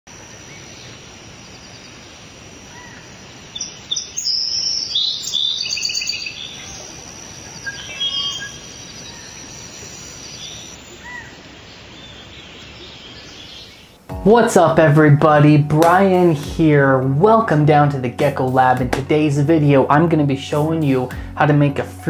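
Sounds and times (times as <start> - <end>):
steady background hiss: 0.1 - 22.0
birds chirping and singing: 3.6 - 14.1.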